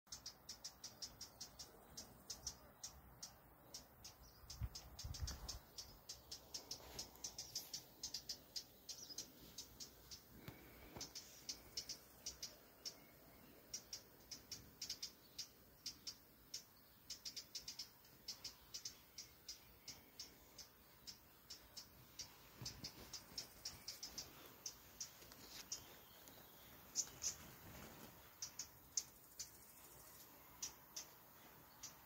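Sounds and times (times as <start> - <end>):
songbird ticking alarm calls: 0.1 - 32.0.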